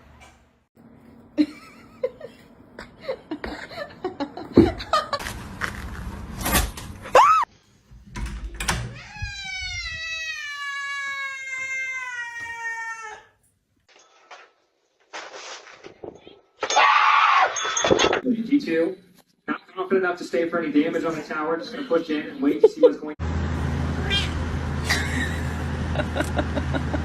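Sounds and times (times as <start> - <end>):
cat yowling: 8.9 - 13.4, 24.0 - 24.4.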